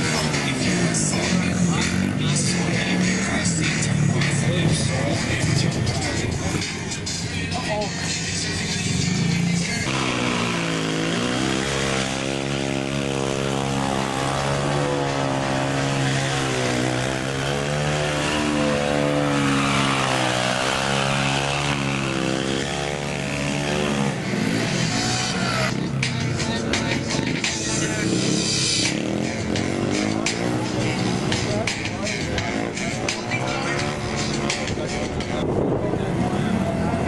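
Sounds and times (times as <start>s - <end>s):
small engine revving high: 9.8s - 25.9s.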